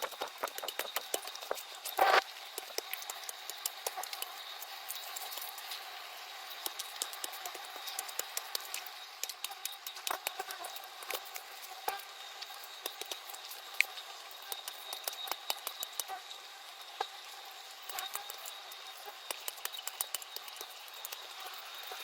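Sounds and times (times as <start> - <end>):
hand tool digging soil: 0.0 - 2.2.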